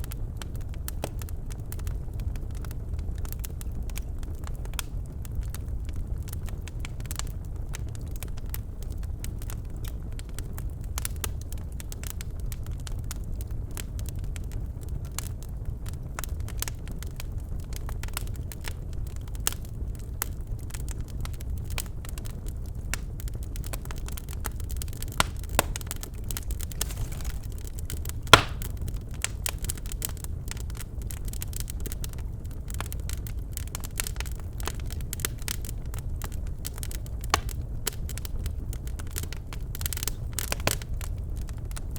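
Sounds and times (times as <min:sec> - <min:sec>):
fire crackling and snapping: 0:00.0 - 0:41.9
logs burning in a fireplace: 0:00.0 - 0:41.9
loud pop of burning wood: 0:25.0 - 0:28.9, 0:37.3 - 0:37.6.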